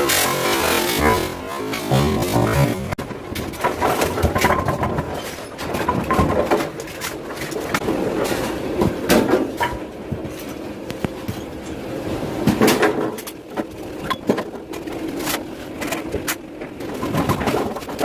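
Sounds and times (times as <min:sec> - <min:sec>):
low rumble of lane machinery: 0:00.0 - 0:18.0
sharp knocks of bowling pins: 0:02.0 - 0:07.8.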